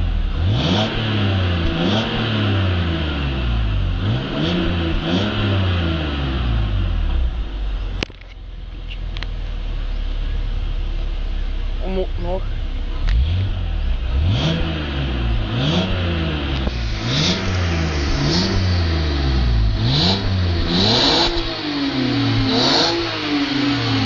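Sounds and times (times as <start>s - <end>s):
car engine revving: 0.0s - 8.1s, 9.1s - 24.0s.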